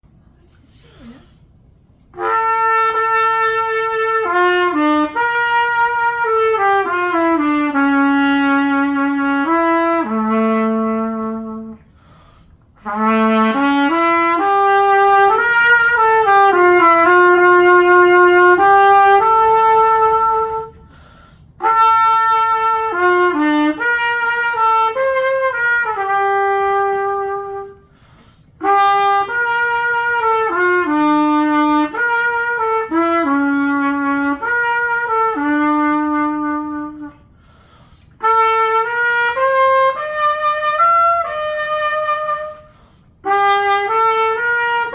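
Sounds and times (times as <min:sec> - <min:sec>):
cornet playing melodic phrases: 0:02.1 - 0:11.9, 0:12.8 - 0:21.0, 0:21.6 - 0:44.9
player breathing: 0:11.9 - 0:12.8, 0:20.8 - 0:21.6, 0:27.8 - 0:28.6, 0:37.3 - 0:38.2, 0:42.6 - 0:43.2.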